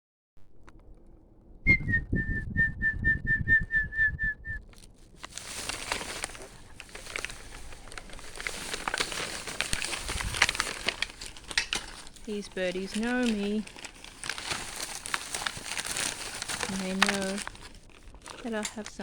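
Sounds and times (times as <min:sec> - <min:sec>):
person whistling: 0:01.7 - 0:04.7
crinkling rustle: 0:04.6 - 0:19.0.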